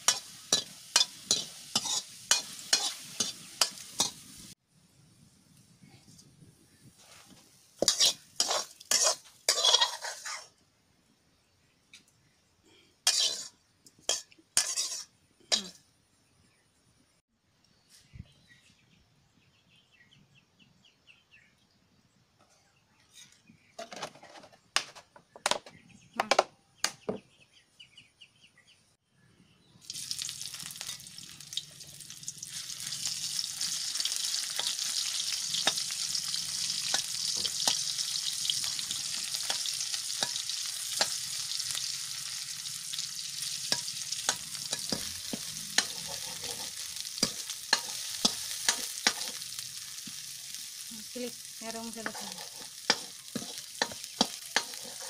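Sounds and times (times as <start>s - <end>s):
metal ladle scraping a wok: 0.0s - 4.2s, 7.8s - 10.5s, 13.1s - 15.7s, 32.4s - 49.6s, 52.0s - 55.0s
food sizzling in a wok: 0.0s - 4.6s, 6.8s - 10.6s, 13.0s - 15.8s, 29.8s - 55.0s.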